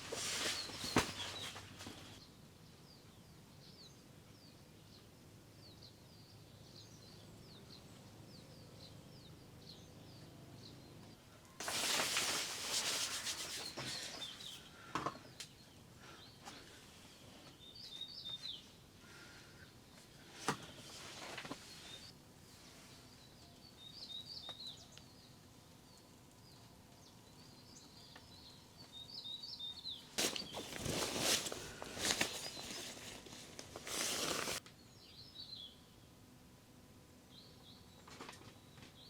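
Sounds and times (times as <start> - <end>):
rustling and rubbing: 0.0 - 2.2, 11.6 - 14.6, 20.7 - 22.9, 30.2 - 34.6
small birds chirping: 0.0 - 36.0.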